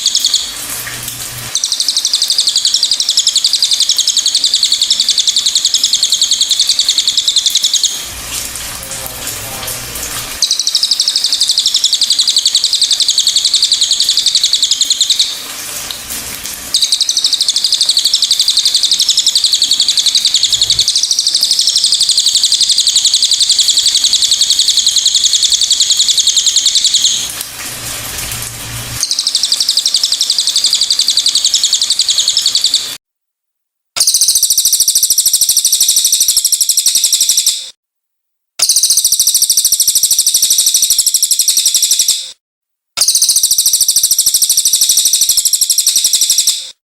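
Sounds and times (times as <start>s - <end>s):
songbird chattering trill: 1.5s - 8.0s, 10.4s - 15.4s, 16.8s - 27.3s, 29.1s - 33.0s, 34.0s - 37.7s, 38.6s - 42.2s, 43.0s - 46.6s.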